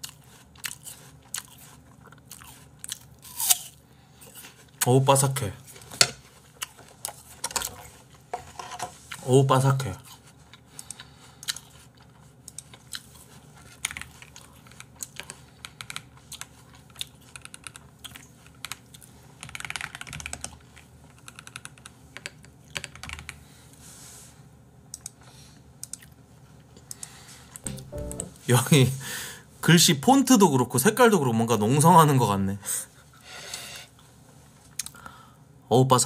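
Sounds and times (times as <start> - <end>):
apple slices crunching: 0.0 - 3.8.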